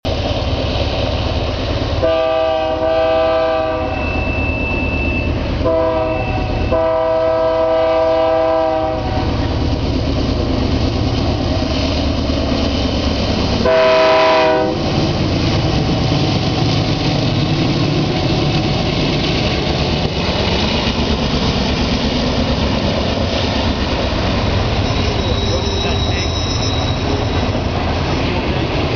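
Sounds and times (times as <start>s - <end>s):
diesel locomotive rumble: 0.0s - 28.9s
train air horn blasts: 2.0s - 9.4s, 13.6s - 15.0s.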